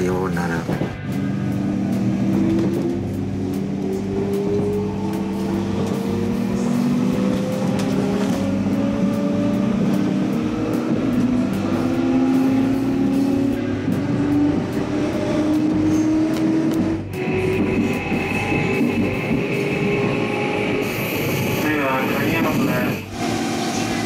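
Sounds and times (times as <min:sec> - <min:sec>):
train car rumble: 0:00.0 - 0:24.0.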